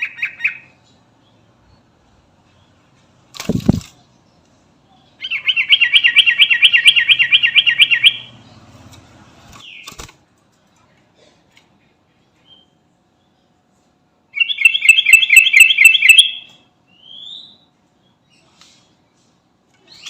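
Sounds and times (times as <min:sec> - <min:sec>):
bird singing a warbling trill: 0:05.0 - 0:08.7, 0:14.4 - 0:18.4.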